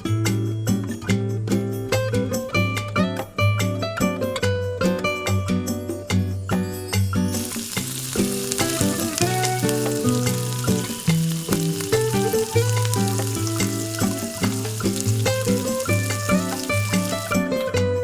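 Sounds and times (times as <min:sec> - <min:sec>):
background music: 0:00.0 - 0:18.0
food sizzling in hot oil: 0:07.3 - 0:17.6.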